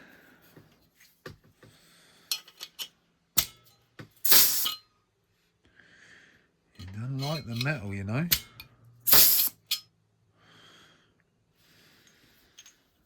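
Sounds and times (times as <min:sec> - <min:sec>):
pneumatic tool air blast: 0:04.2 - 0:04.8, 0:09.1 - 0:09.7.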